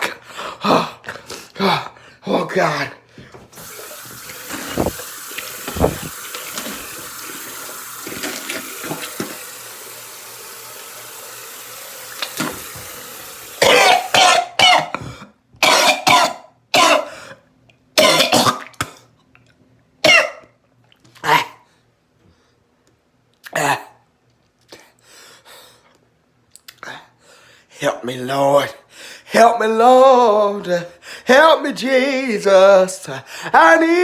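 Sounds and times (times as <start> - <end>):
tap running water: 3.5 - 14.2
man coughing hard: 13.6 - 17.2, 18.0 - 18.7, 20.0 - 20.4.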